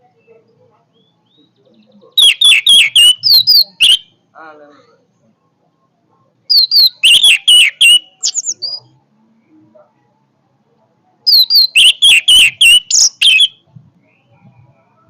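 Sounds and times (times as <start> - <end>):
thrush singing loudly: 6.5 - 8.8, 11.3 - 13.5.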